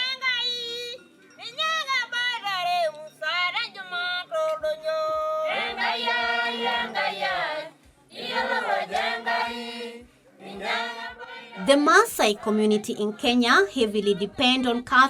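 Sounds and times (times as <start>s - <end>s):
group of women singing: 1.6s - 14.8s
woman singing gliding notes: 11.6s - 15.0s.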